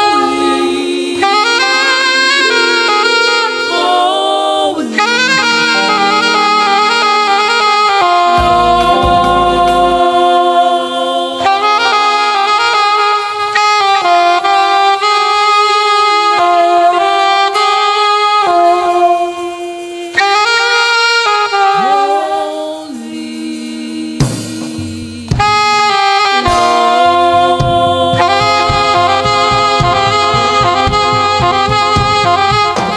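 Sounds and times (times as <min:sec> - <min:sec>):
gospel band music: 0:00.0 - 0:32.9
saxophone melody: 0:00.0 - 0:32.9
drum hits: 0:26.4 - 0:32.9.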